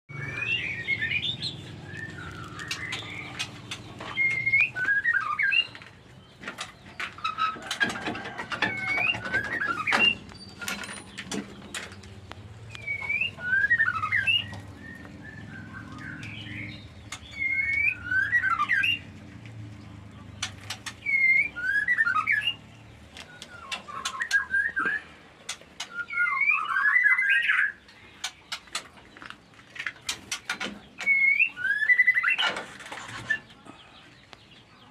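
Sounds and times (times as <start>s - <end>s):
bird whistling curling phrases: 0.1s - 3.5s, 4.1s - 5.8s, 12.7s - 19.0s, 20.9s - 22.6s, 23.3s - 25.2s, 25.8s - 27.8s, 31.0s - 32.4s.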